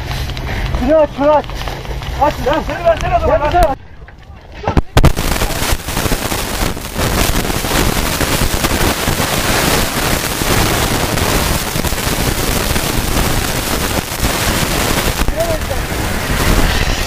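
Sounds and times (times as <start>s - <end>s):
fire extinguisher hissing: 5.2s - 17.0s.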